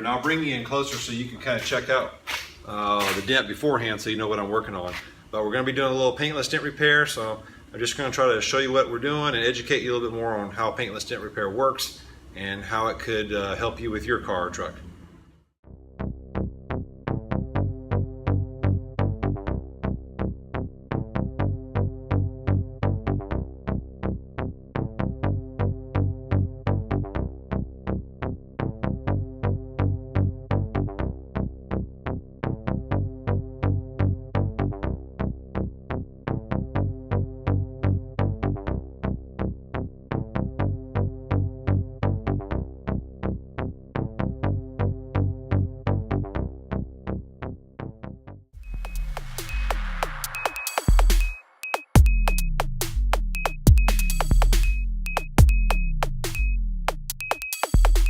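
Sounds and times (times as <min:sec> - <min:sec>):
electronic music with drum-machine beat: 0:00.0 - 0:03.3, 0:48.6 - 0:58.0.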